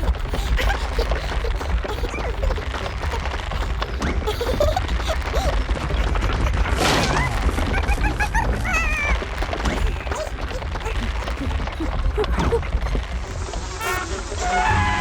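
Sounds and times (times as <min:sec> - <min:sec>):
cartoon music: 0:13.8 - 0:15.0
cartoon sound effects: 0:13.8 - 0:15.0.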